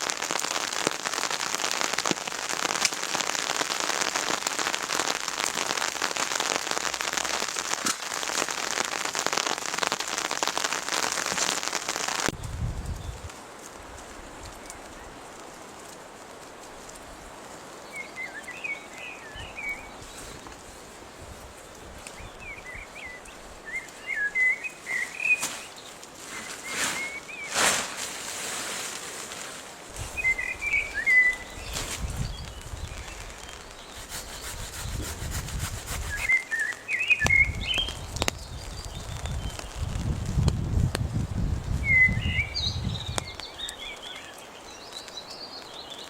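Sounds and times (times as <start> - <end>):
songbird twittering: 22.1 - 27.6, 30.1 - 35.0, 36.0 - 39.9, 41.8 - 46.0.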